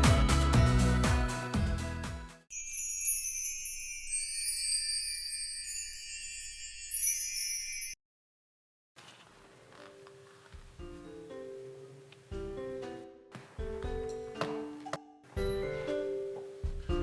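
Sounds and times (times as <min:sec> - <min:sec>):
background music: 0:00.0 - 0:02.5, 0:10.8 - 0:17.0
glittering chime and jingle: 0:00.0 - 0:08.0.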